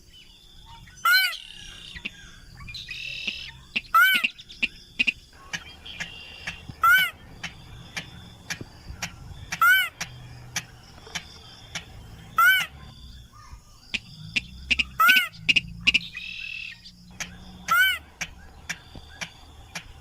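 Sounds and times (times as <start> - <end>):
sharp ticks: 3.2 - 12.7, 13.9 - 20.0.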